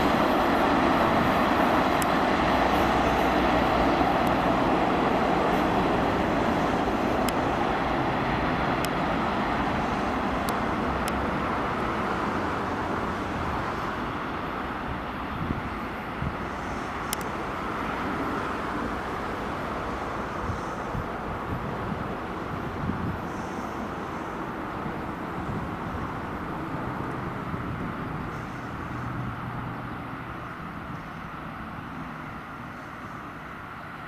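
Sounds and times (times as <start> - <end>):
freight train wagons rumbling: 0.0 - 34.0
faint clicks: 17.1 - 17.3.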